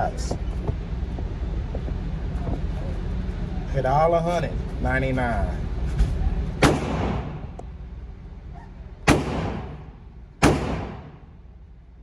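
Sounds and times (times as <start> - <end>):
gunshots echoing: 6.6 - 7.6, 9.1 - 11.4.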